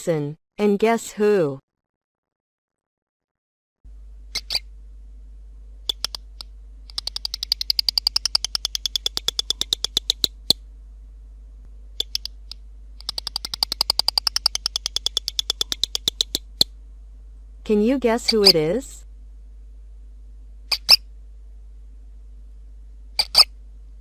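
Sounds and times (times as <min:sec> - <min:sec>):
faint steady hum: 0:03.9 - 0:24.0
lizard clicking call: 0:04.3 - 0:04.6, 0:05.8 - 0:10.6, 0:12.0 - 0:16.7.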